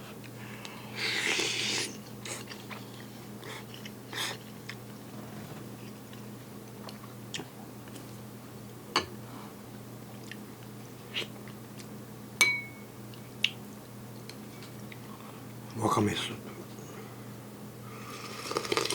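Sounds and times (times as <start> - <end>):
steady low hum: 0.0 - 18.9
quiet chewing: 2.1 - 4.8, 10.1 - 11.9
spoon clinking against bowl: 12.4 - 12.9.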